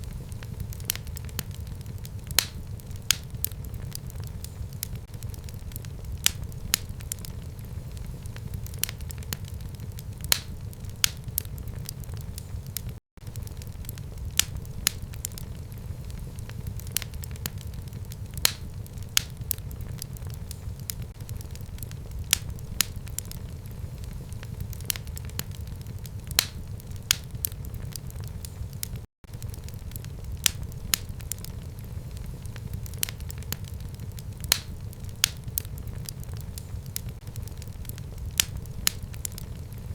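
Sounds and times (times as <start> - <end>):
fire crackling in fireplace: 0.0 - 39.9.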